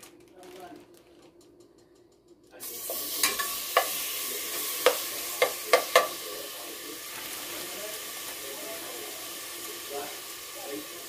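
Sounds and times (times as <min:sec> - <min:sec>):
food sizzling in a pan: 0:02.6 - 0:11.0
utensil knocking on a pan: 0:02.9 - 0:04.0, 0:04.6 - 0:06.2.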